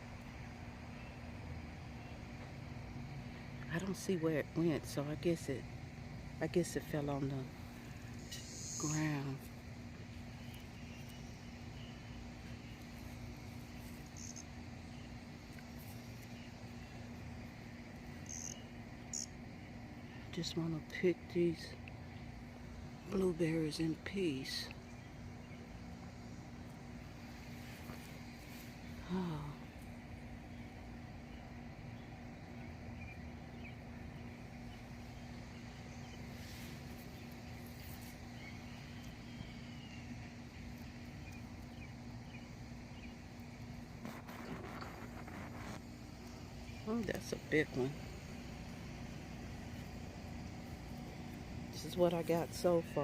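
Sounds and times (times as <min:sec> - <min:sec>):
faint hum: 0:00.0 - 0:53.0
crackling hiss: 0:07.5 - 0:20.2, 0:34.7 - 0:51.8
faint bird chirps: 0:07.9 - 0:09.4, 0:10.0 - 0:17.2, 0:18.1 - 0:20.2, 0:30.5 - 0:47.9.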